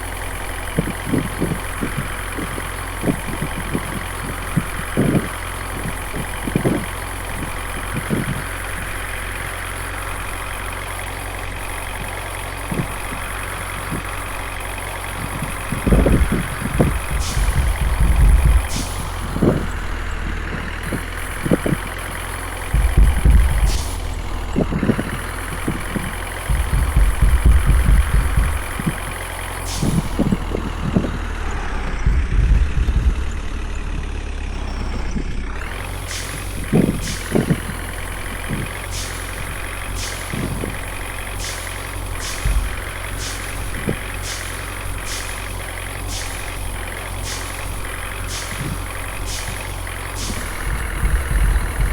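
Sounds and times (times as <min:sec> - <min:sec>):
evenly spaced clicks: 0:00.0 - 0:51.9
knocks and rattles: 0:00.0 - 0:51.9
truck engine running: 0:00.0 - 0:51.9.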